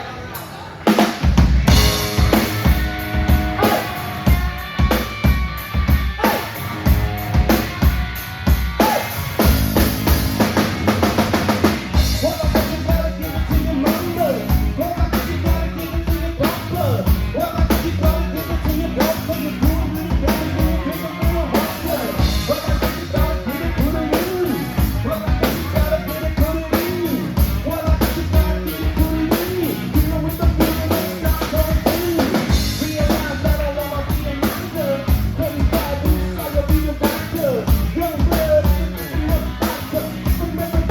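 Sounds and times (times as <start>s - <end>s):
rock band playing: 0.0s - 40.9s
drum kit beat: 0.9s - 40.9s.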